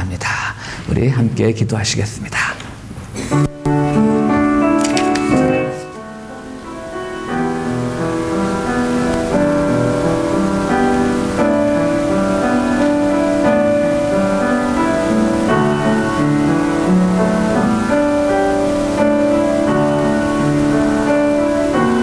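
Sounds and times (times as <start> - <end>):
slow piano music: 3.3 - 22.0.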